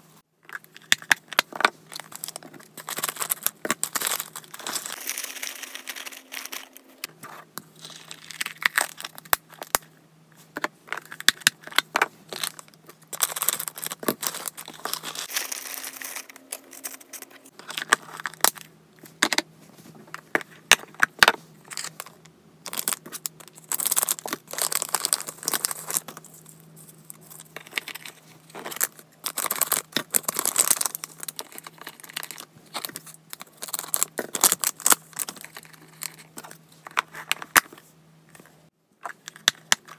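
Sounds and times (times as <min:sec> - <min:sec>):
wrapping material crinkling and tearing: 0:01.9 - 0:07.1, 0:12.3 - 0:18.5, 0:22.7 - 0:36.4.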